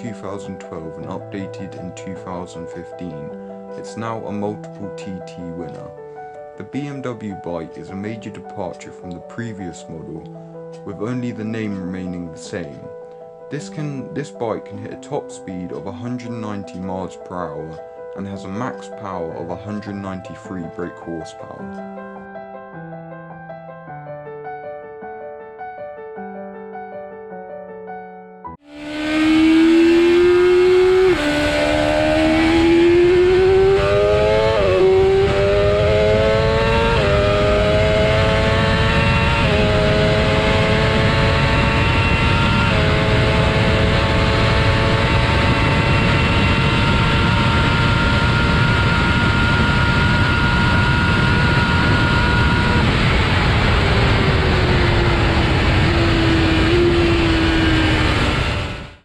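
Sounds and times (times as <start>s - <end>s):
motorcycle engine accelerating: 28.6s - 59.0s.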